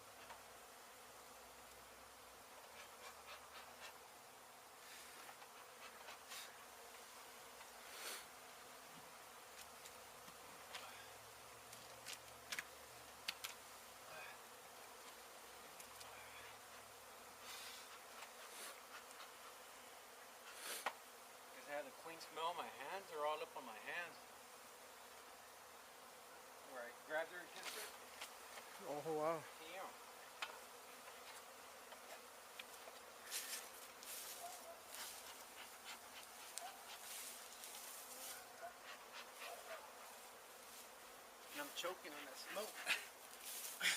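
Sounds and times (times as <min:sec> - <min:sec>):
honey bees buzzing: 0:00.0 - 0:43.9
short hissing bursts: 0:07.8 - 0:08.3, 0:17.4 - 0:19.1, 0:20.4 - 0:21.0.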